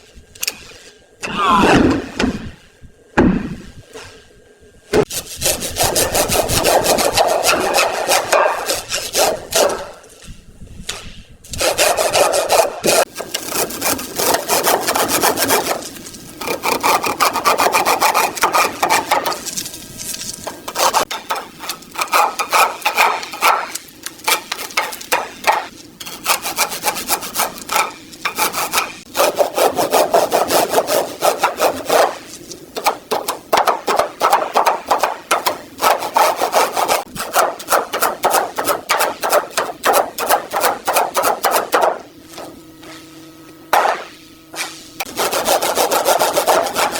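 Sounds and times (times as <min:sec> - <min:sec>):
hand sanding rusted metal: 0:05.0 - 0:10.0, 0:11.5 - 0:43.2, 0:44.0 - 0:46.9.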